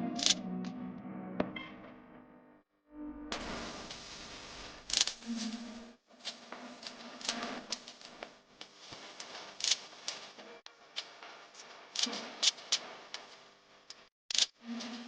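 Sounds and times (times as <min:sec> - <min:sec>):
crisp paper snaps: 0:04.9 - 0:05.2, 0:09.6 - 0:10.2, 0:12.0 - 0:13.3.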